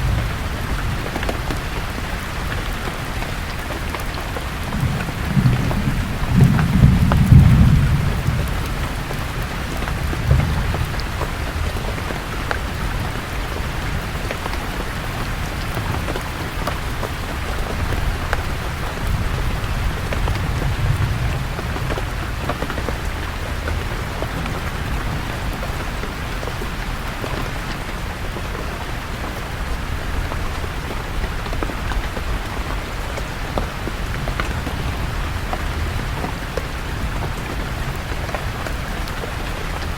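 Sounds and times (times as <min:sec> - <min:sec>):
rain falling on leaves: 0:00.0 - 0:39.9
raindrops ticking: 0:00.0 - 0:39.9
thunder rumbling: 0:03.8 - 0:14.0, 0:15.2 - 0:26.7.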